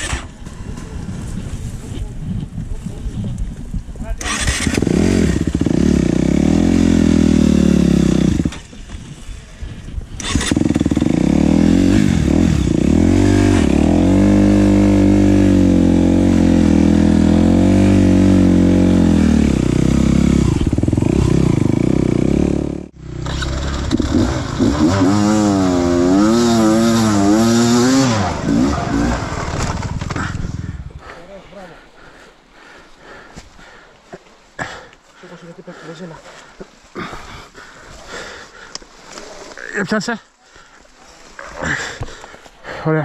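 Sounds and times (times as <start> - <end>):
dirt-bike engine revving: 4.2 - 8.8, 10.2 - 30.8.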